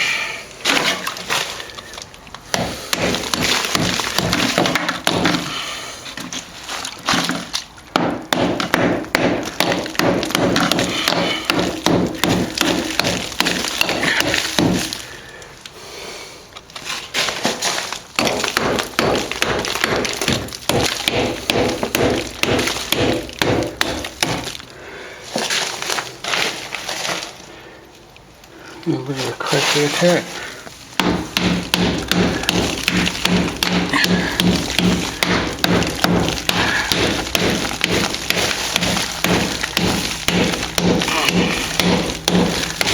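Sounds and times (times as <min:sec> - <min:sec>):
hammer striking chisel on plaster: 0:02.5 - 0:05.6, 0:07.1 - 0:15.0, 0:18.2 - 0:24.5, 0:31.0 - 0:42.9.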